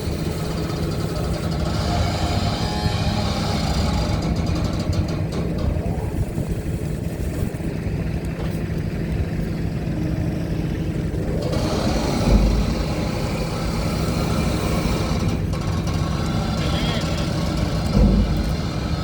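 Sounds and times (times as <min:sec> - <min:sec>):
diesel engines humming: 0:00.0 - 0:19.0
low thump: 0:17.9 - 0:18.8.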